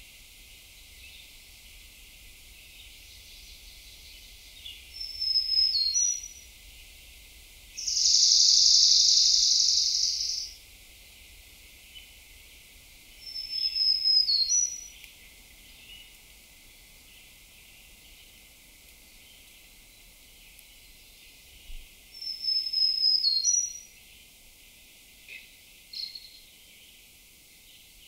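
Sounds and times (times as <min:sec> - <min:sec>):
songbirds whistling songs: 0:02.5 - 0:06.5, 0:07.8 - 0:10.6, 0:13.2 - 0:16.2, 0:19.0 - 0:24.4, 0:25.3 - 0:27.1
bird high steady trill: 0:07.8 - 0:10.6.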